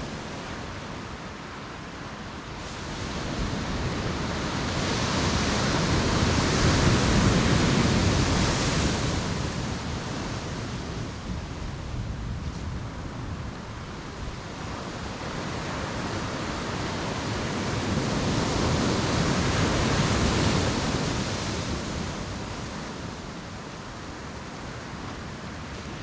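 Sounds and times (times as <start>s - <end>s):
ocean surf breaking: 14.6s - 26.0s.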